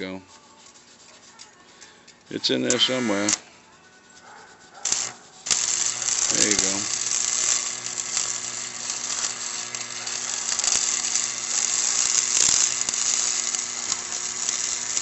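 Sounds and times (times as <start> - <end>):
welding arc crackling: 2.4 - 3.5, 4.8 - 15.0.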